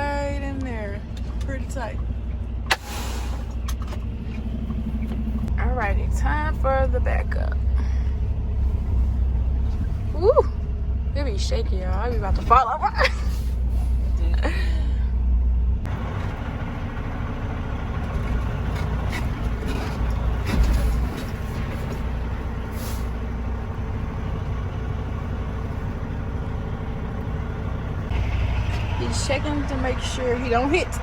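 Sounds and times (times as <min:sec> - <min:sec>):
diesel truck engine running: 0:00.0 - 0:31.0
air brake hiss: 0:02.7 - 0:03.6, 0:22.7 - 0:23.2.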